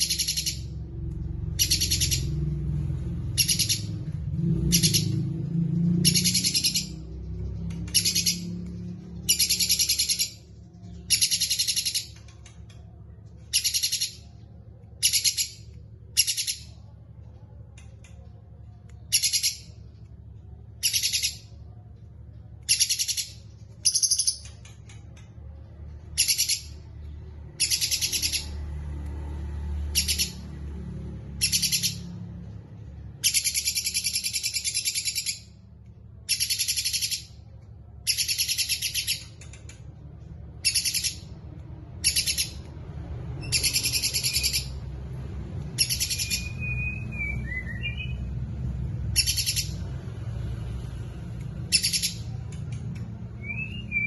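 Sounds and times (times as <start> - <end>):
low bending whistle: 45.8 - 48.2.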